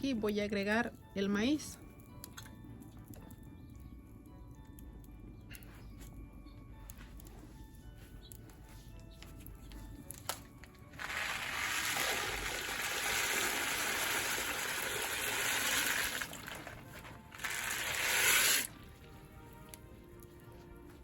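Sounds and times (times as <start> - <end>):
kernels poured into water: 10.9 - 18.8.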